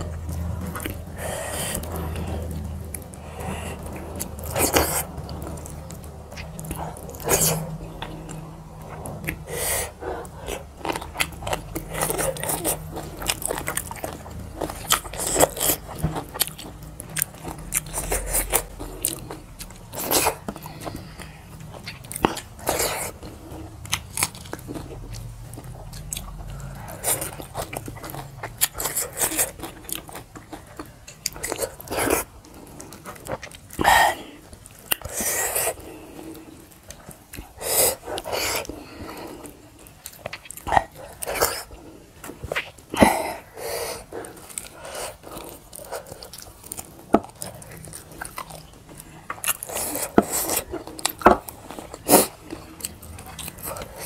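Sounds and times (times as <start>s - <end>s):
chewing and mouth smacking: 0.0s - 54.0s.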